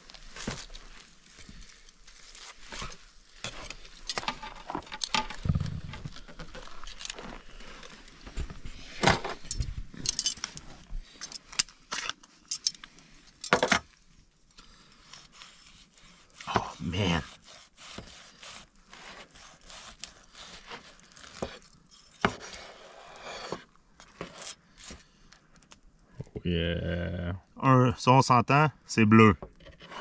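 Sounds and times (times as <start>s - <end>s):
utensils clinking on metal grill: 9.4s - 10.5s.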